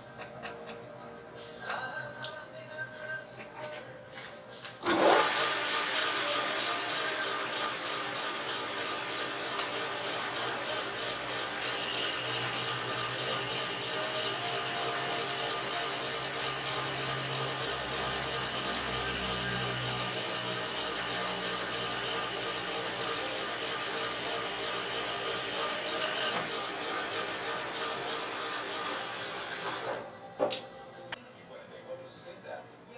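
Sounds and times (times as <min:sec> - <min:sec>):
machine whirring: 0:04.8 - 0:31.2.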